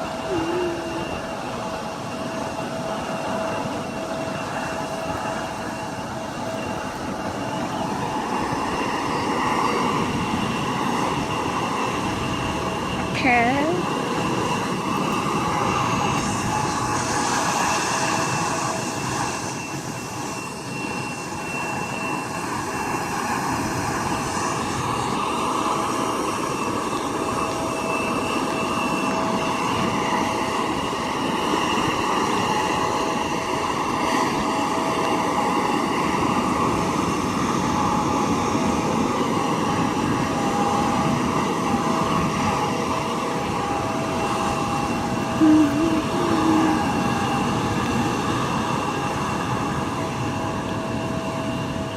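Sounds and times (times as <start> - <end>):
high turbine whine: 0.0 - 51.9
jet engines idling: 0.0 - 51.9.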